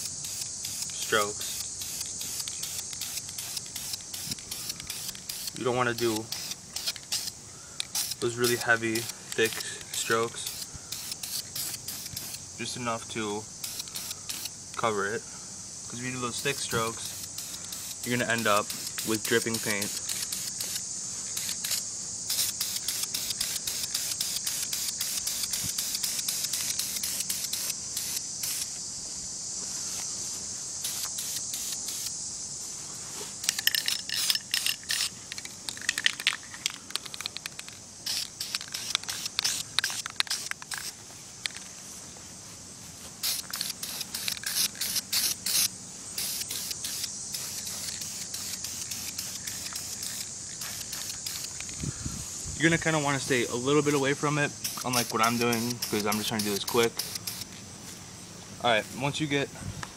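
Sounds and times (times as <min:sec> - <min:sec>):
sharp crackling clicks: 0:00.0 - 0:12.4, 0:13.7 - 0:14.9, 0:16.4 - 0:20.8, 0:21.4 - 0:28.7, 0:33.4 - 0:41.7, 0:43.3 - 0:51.8, 0:54.6 - 0:57.5
spray paint can hissing: 0:00.0 - 0:13.0, 0:13.6 - 0:14.9, 0:15.9 - 0:28.9, 0:30.8 - 0:32.5, 0:33.1 - 0:41.6, 0:43.2 - 0:52.0, 0:53.1 - 0:57.6.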